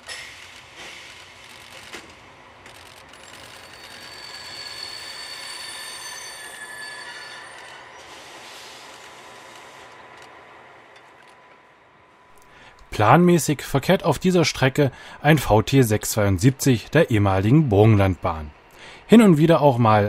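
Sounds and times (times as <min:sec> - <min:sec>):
train passing: 0:00.0 - 0:20.0
wheels squealing against rails: 0:02.7 - 0:10.7.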